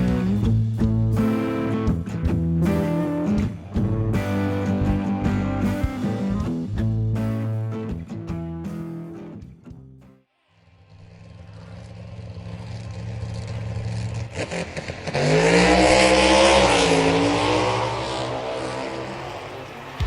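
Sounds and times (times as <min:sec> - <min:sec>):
car engine revving and driving past: 0:10.5 - 0:20.0.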